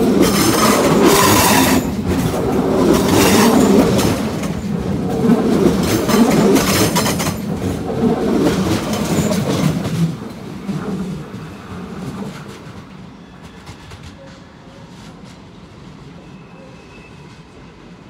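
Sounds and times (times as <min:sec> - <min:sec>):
wheels clacking over rail joints: 0:00.0 - 0:11.0
train wheels rumbling: 0:00.0 - 0:18.0.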